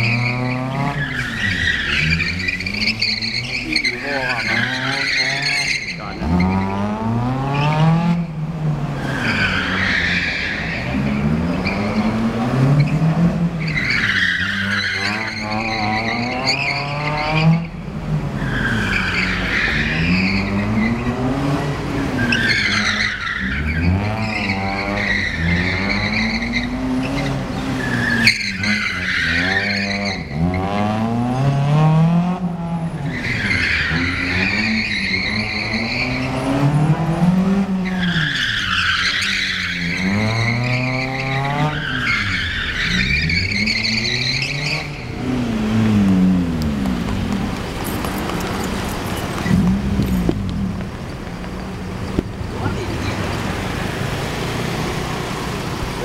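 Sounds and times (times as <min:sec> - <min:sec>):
tyres squealing: 0:00.0 - 0:06.8, 0:09.0 - 0:17.8, 0:18.4 - 0:30.7, 0:32.9 - 0:56.0
car engine revving: 0:00.0 - 0:56.0.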